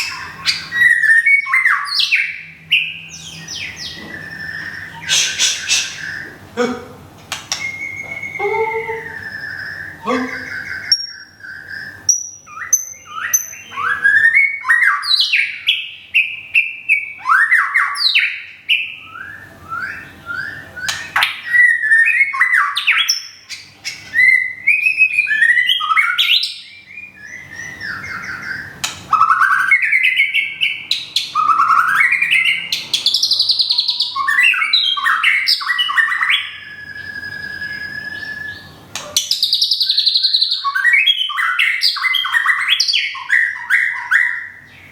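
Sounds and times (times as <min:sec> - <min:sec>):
bird singing whistled phrases: 0:00.0 - 0:06.4, 0:07.5 - 0:44.9
bird clicks: 0:07.2 - 0:07.7.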